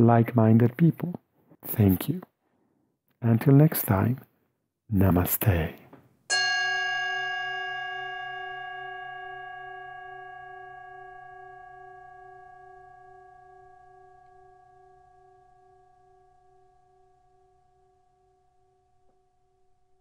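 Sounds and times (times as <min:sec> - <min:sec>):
singing bowl ringing: 0:06.3 - 0:19.8.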